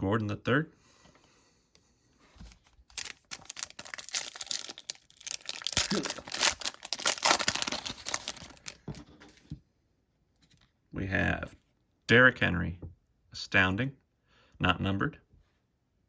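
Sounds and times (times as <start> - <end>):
foil wrapper tearing and crinkling: 2.9 - 8.8.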